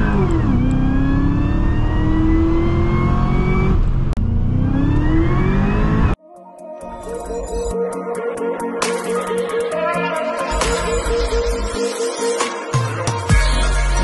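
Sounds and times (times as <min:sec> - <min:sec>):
car engine accelerating hard: 0:00.0 - 0:06.2.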